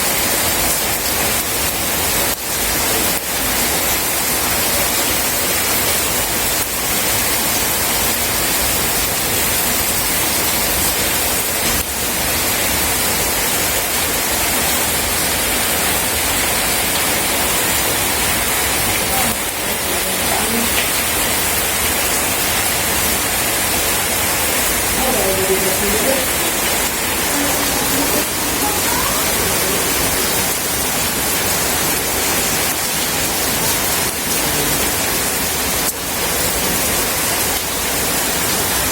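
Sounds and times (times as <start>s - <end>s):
steady rain falling: 0.0s - 38.9s
faint voice: 18.9s - 20.8s, 24.9s - 30.5s, 34.3s - 35.0s.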